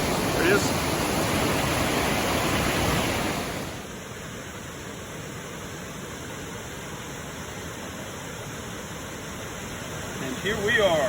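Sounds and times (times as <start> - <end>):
waterfall roaring: 0.0 - 4.0.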